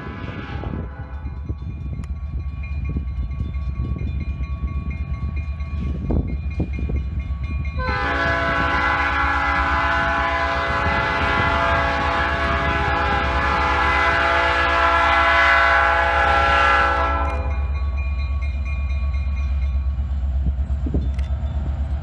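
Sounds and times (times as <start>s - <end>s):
locomotive air horn blast: 0.0s - 1.1s, 7.8s - 17.6s
train rumbling past: 0.0s - 22.0s.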